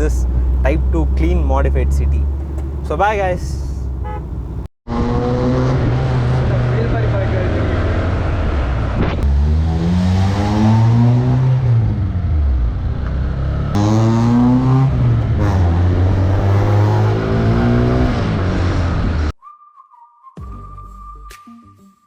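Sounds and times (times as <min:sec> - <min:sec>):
car engine revving through gears: 0:03.8 - 0:19.3.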